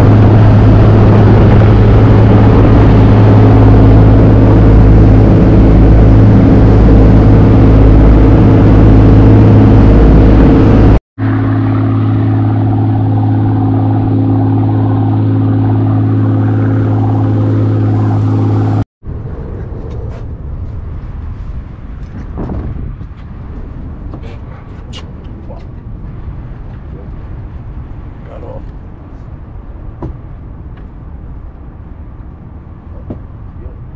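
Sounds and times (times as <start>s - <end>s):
boat engine running: 0.0s - 18.8s
wind and water rushing: 0.0s - 18.8s.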